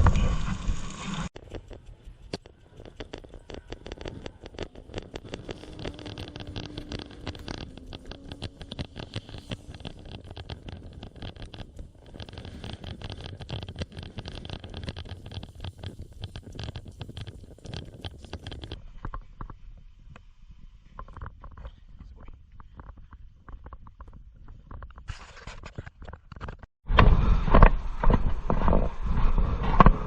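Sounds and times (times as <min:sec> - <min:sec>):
fat crackling and spitting on fire: 0:00.0 - 0:19.5.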